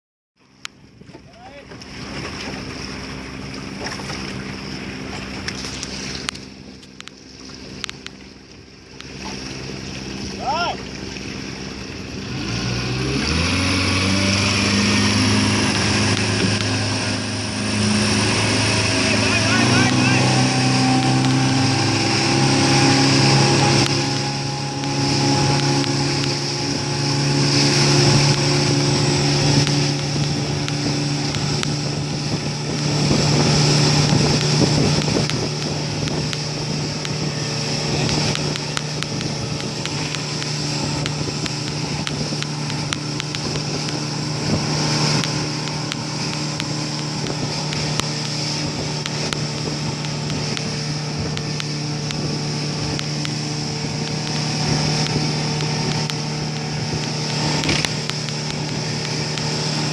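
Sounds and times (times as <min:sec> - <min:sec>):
hiss of water and wind: 0:00.4 - 0:59.9
motorboat engine running: 0:00.4 - 0:59.9.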